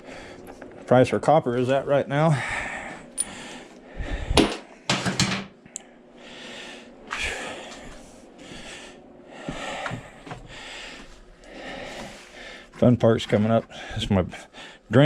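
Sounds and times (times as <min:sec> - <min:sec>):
man breathing heavily: 0:00.0 - 0:00.5, 0:02.2 - 0:04.9, 0:05.9 - 0:12.8, 0:13.7 - 0:14.9.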